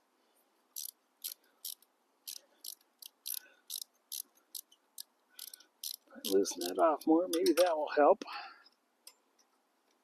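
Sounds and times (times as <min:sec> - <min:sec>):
ratchet wrench clicking: 0:00.8 - 0:06.8.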